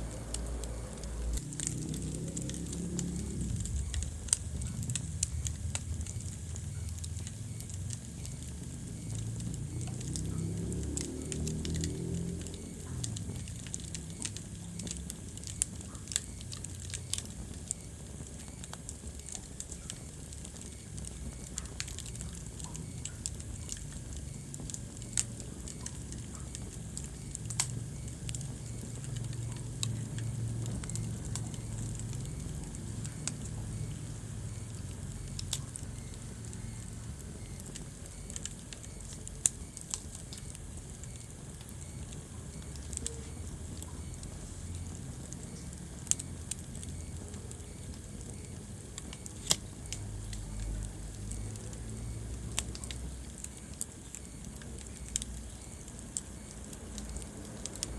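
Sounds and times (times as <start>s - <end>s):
fire popping: 0.0s - 57.9s
low steady rumble: 0.0s - 57.9s
wood fire crackling: 0.0s - 57.9s.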